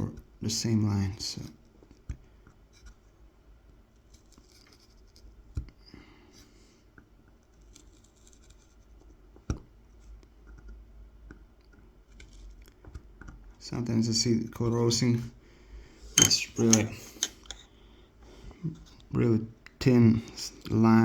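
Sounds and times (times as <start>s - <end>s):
knife scratching wood: 4.0s - 5.6s, 7.4s - 9.2s.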